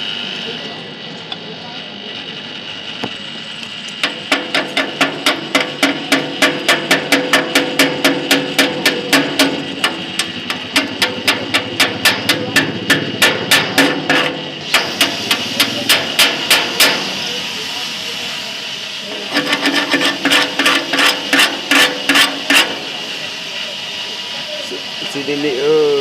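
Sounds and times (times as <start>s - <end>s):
hammer striking ringing metal: 4.1s - 17.2s.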